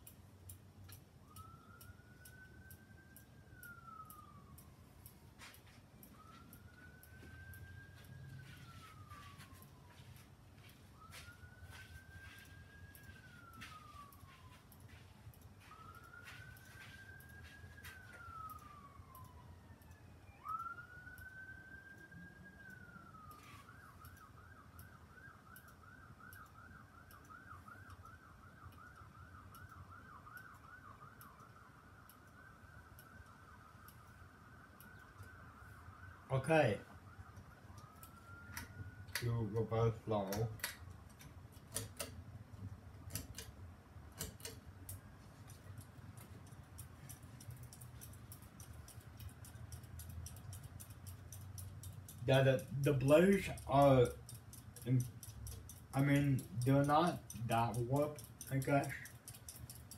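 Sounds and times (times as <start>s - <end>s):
faint emergency siren yelping: 0.0s - 59.2s
ceiling fan motor hum: 0.0s - 59.9s
faint scattered ticks: 44.8s - 59.9s.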